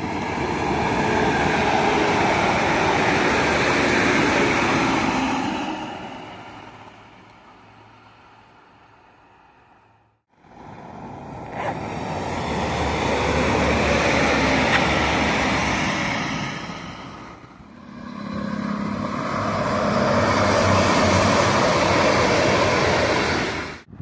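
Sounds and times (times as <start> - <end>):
diesel train passing: 0.0 - 24.0.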